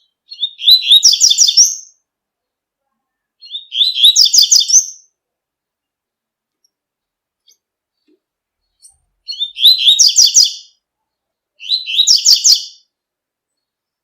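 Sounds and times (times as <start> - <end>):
bird singing rapid notes: 8.6 - 10.8, 11.6 - 12.9.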